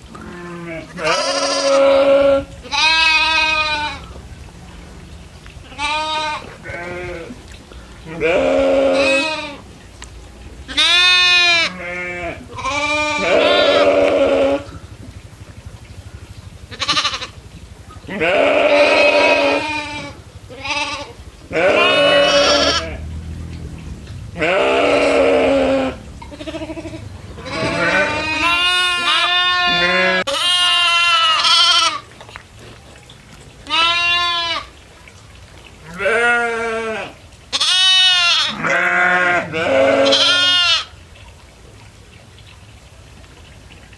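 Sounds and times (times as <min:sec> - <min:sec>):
goats bleating: 0:00.1 - 0:04.2, 0:05.6 - 0:07.4, 0:08.0 - 0:09.6, 0:10.7 - 0:14.9, 0:16.6 - 0:17.4, 0:18.0 - 0:23.2, 0:24.3 - 0:32.1, 0:33.6 - 0:34.8, 0:35.8 - 0:41.0.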